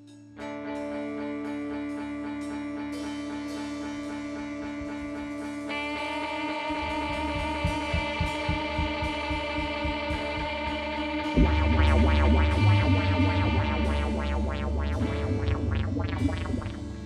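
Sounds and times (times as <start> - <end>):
electric guitar notes ringing: 0.0 - 17.0
low pulsing beat: 6.7 - 17.0.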